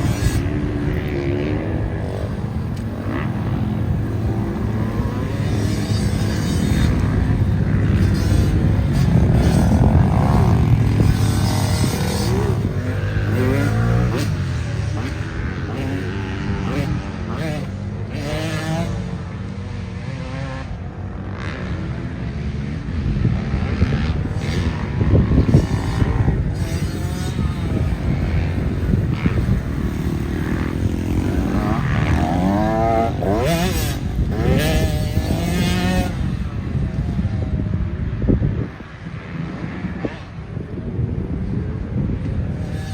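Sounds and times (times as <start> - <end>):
dirt bike engine revving: 0.0 - 40.5, 41.3 - 42.9.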